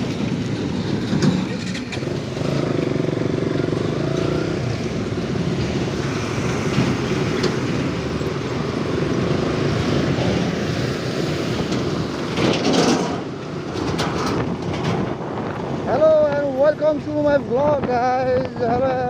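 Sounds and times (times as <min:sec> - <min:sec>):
motorcycle engine running: 0:00.0 - 0:09.2
passing vehicle noise: 0:00.0 - 0:19.0.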